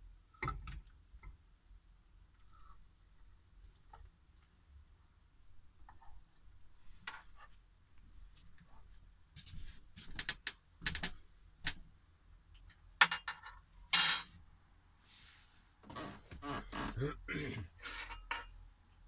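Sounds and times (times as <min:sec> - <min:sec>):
short scrape: 0:15.0 - 0:15.6
dishes and cutlery clinking: 0:17.8 - 0:18.6.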